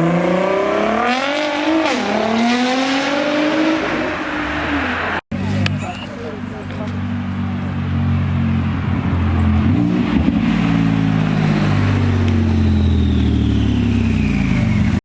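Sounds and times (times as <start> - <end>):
car engine revving: 0.0 - 15.0
high whine: 11.2 - 15.0.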